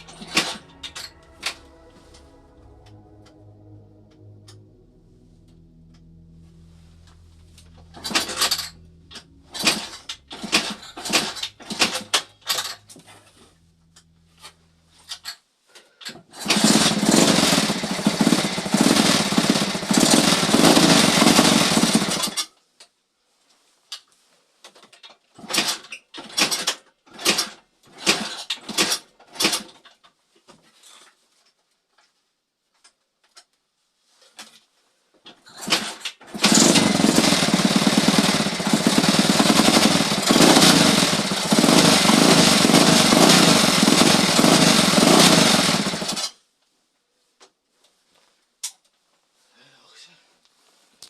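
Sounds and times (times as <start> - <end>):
small engine running: 0.0 - 2.2, 7.5 - 15.1, 16.4 - 22.4, 35.7 - 46.4
short bursts of sound: 0.0 - 15.1.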